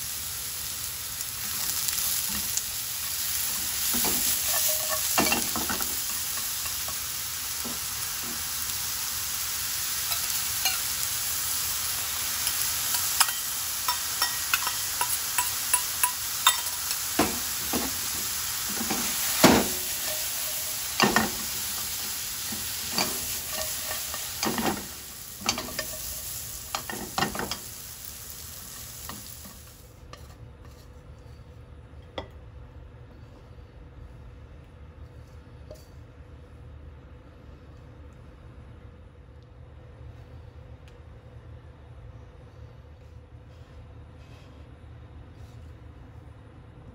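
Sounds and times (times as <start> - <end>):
vegetables sizzling in a pan: 0.0 - 30.8
utensil clacking against pan: 12.9 - 17.9.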